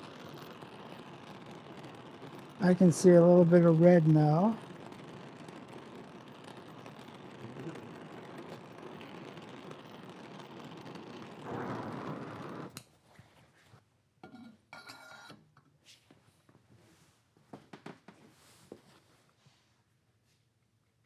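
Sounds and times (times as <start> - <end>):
gas torch hissing: 0.0 - 12.8
torch shutoff click: 0.1 - 12.9
faint metallic clinks and scrapes: 14.2 - 15.7.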